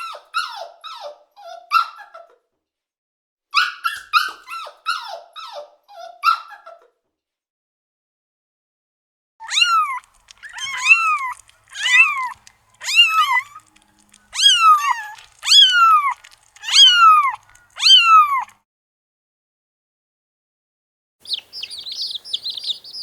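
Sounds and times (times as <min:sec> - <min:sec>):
cat meowing: 0:09.4 - 0:18.6.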